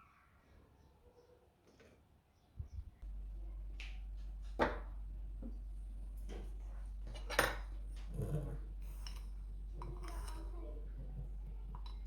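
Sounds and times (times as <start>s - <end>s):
steady low hum: 2.8s - 12.0s
kitchenware clinking: 7.0s - 12.0s.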